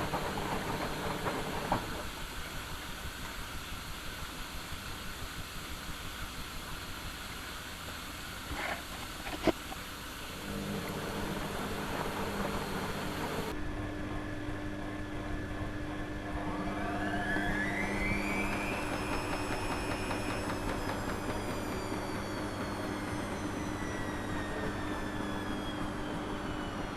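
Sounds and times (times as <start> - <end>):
washing machine motor hum: 0.0 - 2.1, 8.5 - 26.9
drum spinning whine: 0.0 - 26.9.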